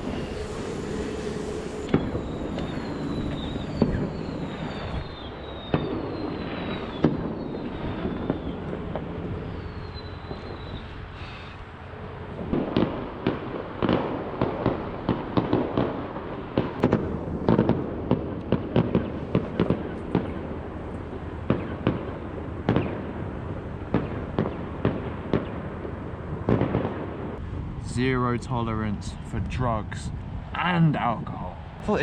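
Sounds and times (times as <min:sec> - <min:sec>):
fireworks bangs and cracks: 0:00.0 - 0:10.8, 0:12.4 - 0:20.8, 0:21.4 - 0:27.4
distant fireworks rumble: 0:00.0 - 0:32.0.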